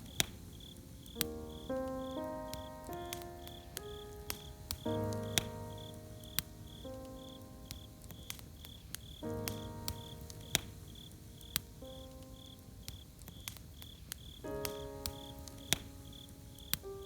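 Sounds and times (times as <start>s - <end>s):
soft sustained music chords: 0.0s - 13.6s
campfire crackling and popping: 0.0s - 17.0s
cricket chirping: 0.0s - 17.0s.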